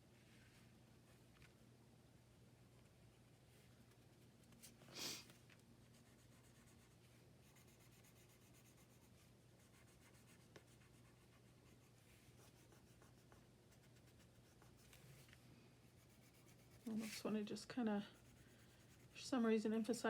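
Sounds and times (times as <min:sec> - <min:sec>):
hand rubbing paper: 0:16.0 - 0:17.4.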